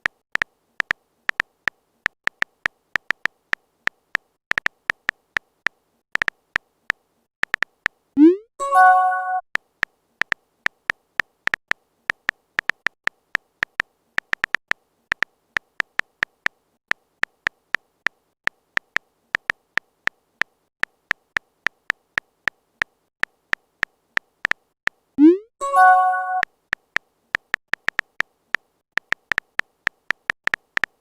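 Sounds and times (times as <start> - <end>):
phone keyboard key clicks: 2.1 - 5.5, 6.2 - 6.6, 7.4 - 8.0, 10.2 - 16.6, 26.7 - 31.0.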